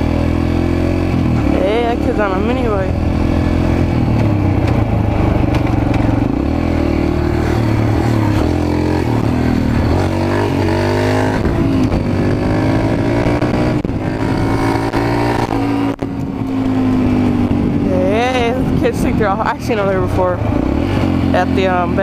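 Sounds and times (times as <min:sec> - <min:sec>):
small motorbike engine revving: 0:00.0 - 0:18.8.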